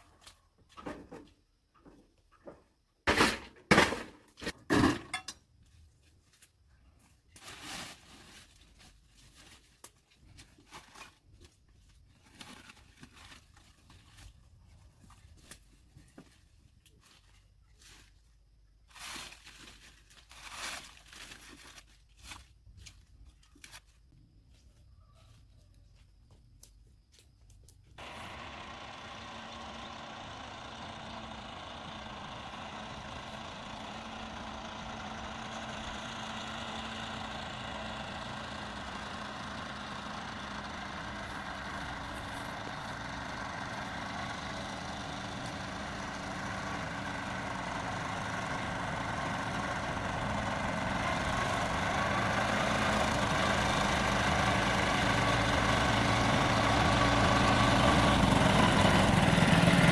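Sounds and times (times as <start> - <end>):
vehicle engine running: 28.0 - 59.9.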